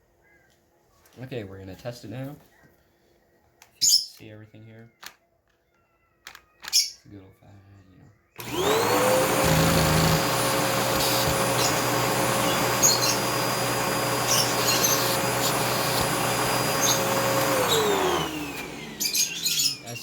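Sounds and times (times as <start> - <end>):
vacuum cleaner motor running: 8.4 - 20.0.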